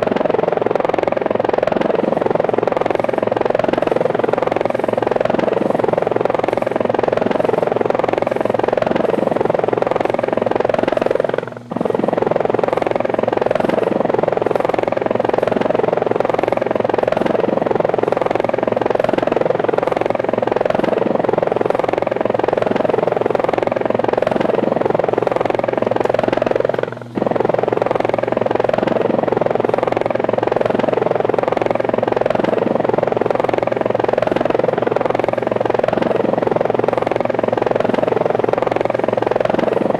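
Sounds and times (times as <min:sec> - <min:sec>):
helicopter rotor pulsing: 0:00.0 - 0:39.9.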